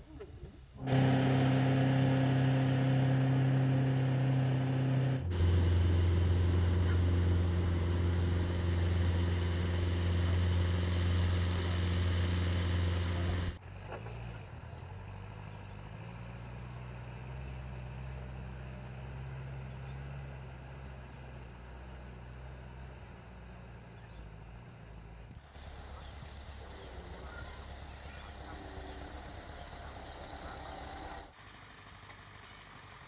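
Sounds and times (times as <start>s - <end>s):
quieter low engine hum: 0.2s - 32.7s
loud machinery engine hum: 0.8s - 33.0s.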